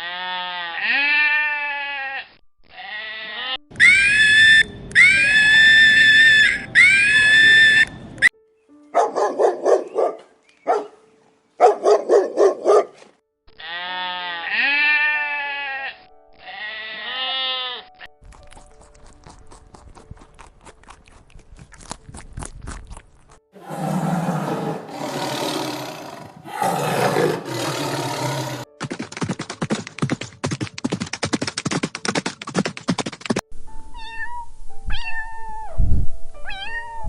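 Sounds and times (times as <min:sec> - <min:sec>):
goats bleating: 0:00.0 - 0:03.6, 0:13.6 - 0:17.8.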